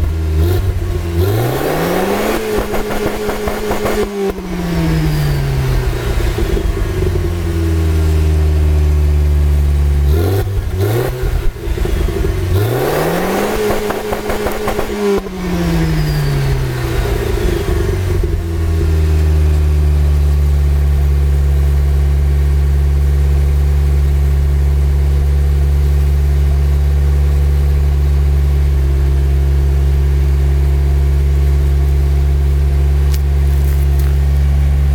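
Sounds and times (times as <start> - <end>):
car engine revving: 0.0 - 8.2, 9.5 - 20.1.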